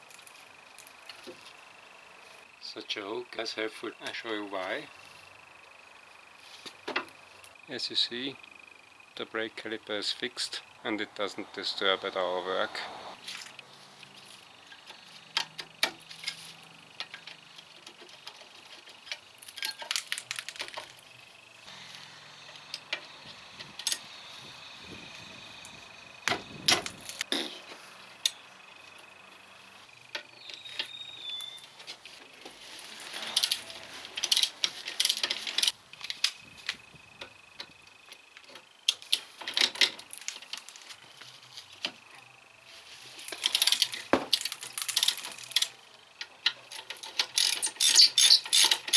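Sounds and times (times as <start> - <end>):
metal tools clinking and scraping: 13.2 - 21.0, 30.2 - 35.7, 43.1 - 45.8, 46.5 - 48.9.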